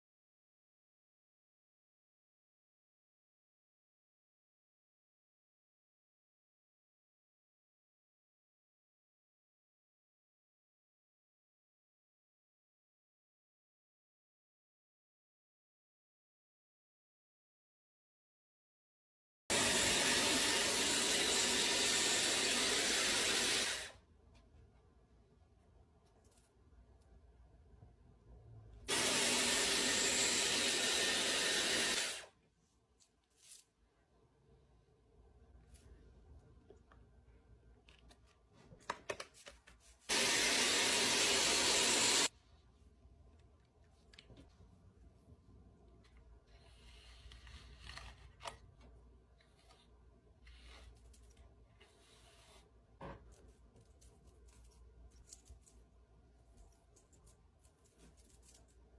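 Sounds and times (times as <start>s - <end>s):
hair dryer fan blowing air: 28.9s - 32.3s, 40.1s - 42.3s
handling rustling: 53.1s - 58.9s.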